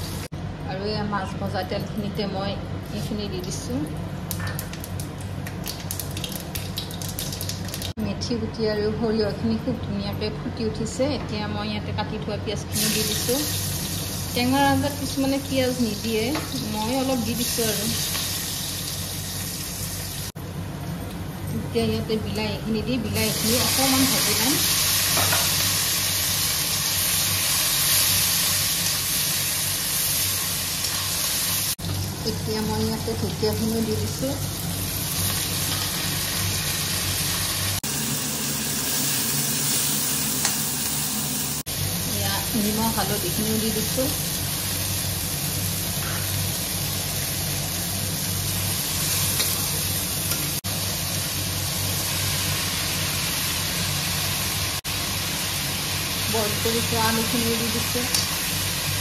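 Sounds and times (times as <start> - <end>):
vegetables sizzling in hot oil: 12.7 - 20.4, 23.0 - 59.0.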